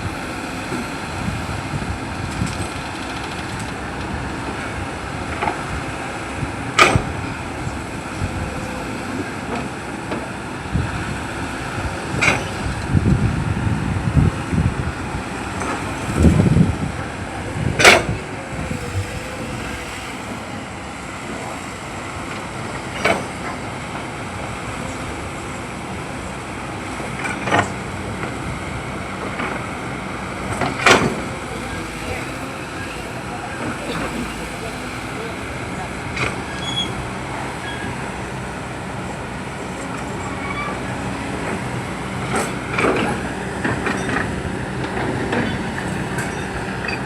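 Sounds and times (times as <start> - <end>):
machinery rumble: 0.0 - 47.0.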